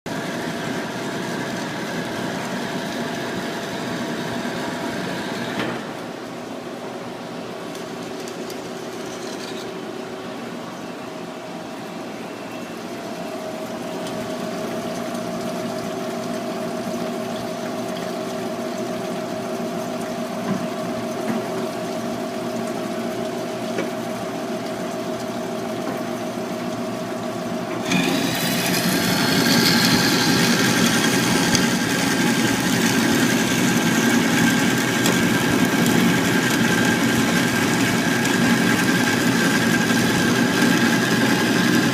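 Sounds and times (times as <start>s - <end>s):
bandsaw cutting metal: 27.8s - 32.6s.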